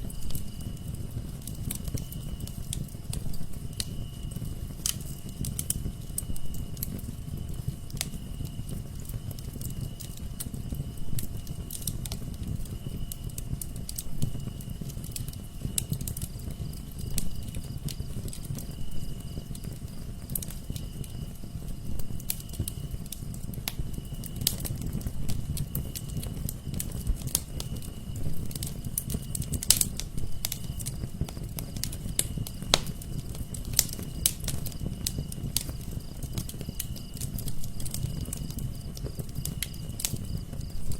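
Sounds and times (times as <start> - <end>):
fire crackling and popping: 0.0 - 40.9
low rumble of flames: 0.0 - 40.9.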